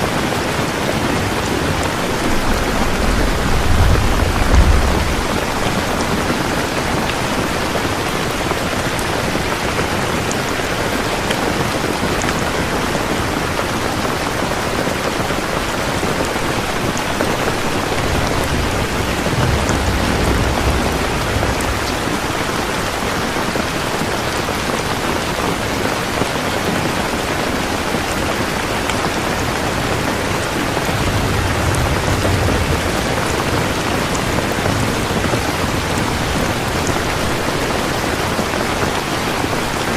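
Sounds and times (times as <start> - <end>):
heavy rain falling: 0.0 - 39.9
low thunder rumble: 0.5 - 9.5, 15.6 - 24.0, 29.4 - 38.7.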